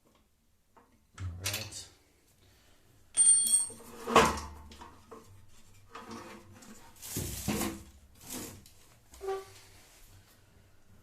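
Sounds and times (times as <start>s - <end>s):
ringing metal clink: 3.2s - 3.8s.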